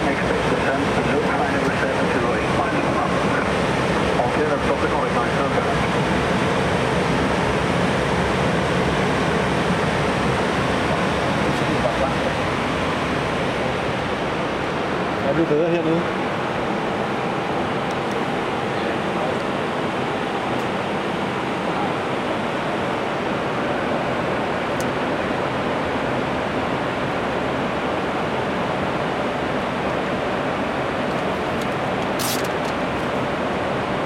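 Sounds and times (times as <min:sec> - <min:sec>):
brief high hiss: 0:32.2 - 0:32.5.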